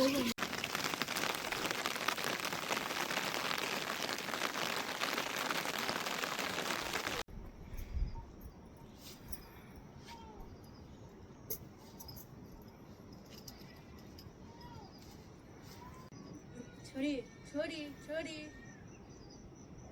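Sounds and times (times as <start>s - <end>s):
rain falling: 0.0s - 7.3s.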